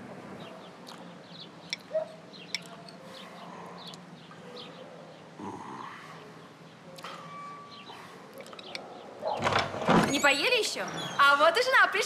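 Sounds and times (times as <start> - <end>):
small birds chirping: 0.4 - 9.4.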